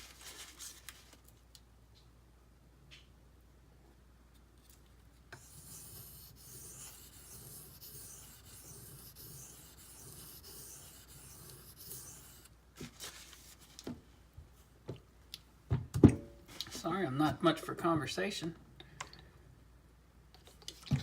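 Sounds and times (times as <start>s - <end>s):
blade scraping on sharpening stone: 5.4s - 12.5s.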